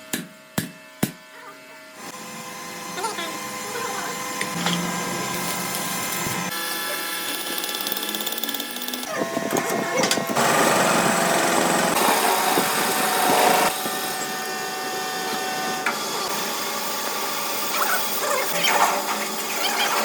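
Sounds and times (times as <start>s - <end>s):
workshop machinery motor whine: 1.8s - 20.0s.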